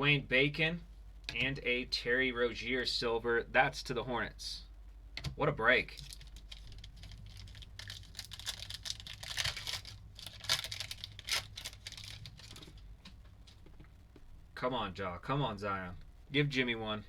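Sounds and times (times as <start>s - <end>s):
cards being handled: 5.9s - 12.8s
plastic wrapper tearing and crinkling: 6.0s - 12.8s.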